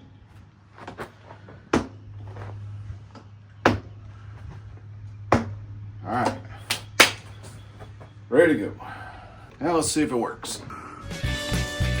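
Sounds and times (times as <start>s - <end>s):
sharp plastic knocks: 3.7s - 3.9s, 5.3s - 5.6s, 6.2s - 7.6s.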